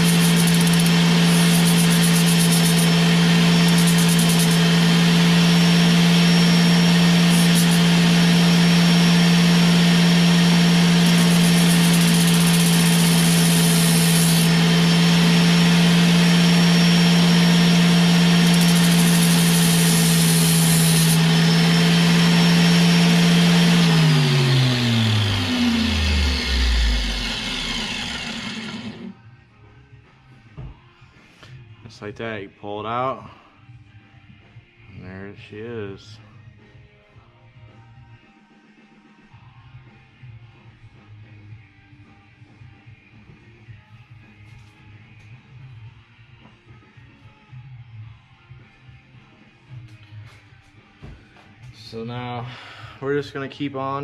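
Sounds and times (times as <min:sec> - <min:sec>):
grinder winding down: 0:00.0 - 0:29.2
rotary grinder running: 0:00.0 - 0:29.2.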